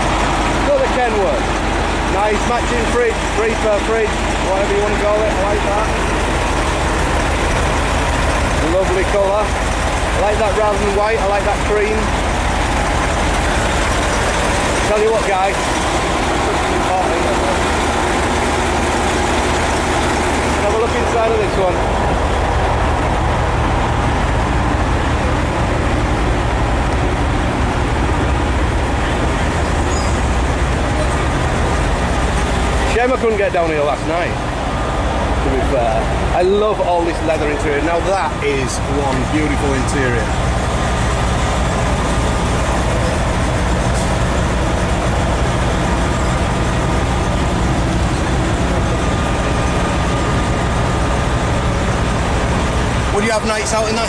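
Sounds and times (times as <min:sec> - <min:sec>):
low rumble with hiss: 0:00.0 - 0:54.0
truck engine idling: 0:00.0 - 0:54.0.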